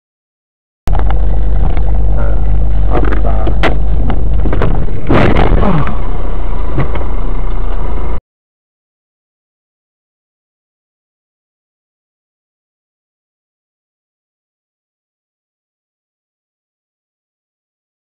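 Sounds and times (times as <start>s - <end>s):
car road and engine rumble: 0.9s - 8.2s
sharp knocks: 2.9s - 6.0s.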